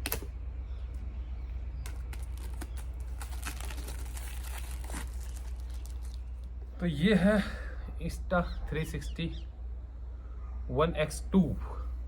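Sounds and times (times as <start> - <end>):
steady low hum: 0.0 - 12.0
packaging crinkling and tearing: 1.8 - 6.5.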